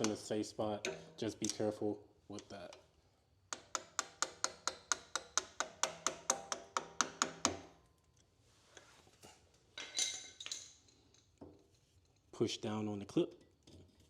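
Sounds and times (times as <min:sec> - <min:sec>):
hammer tapping a metal punch: 0:03.5 - 0:07.7.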